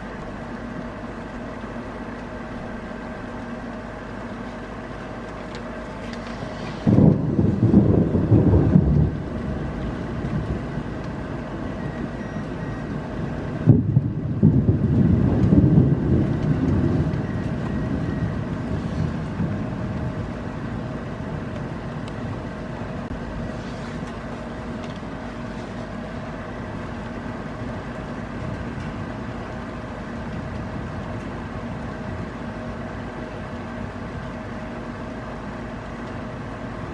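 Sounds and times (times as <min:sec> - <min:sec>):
steady rain: 0:00.0 - 0:36.9
thunder clap rumbling: 0:06.7 - 0:23.6.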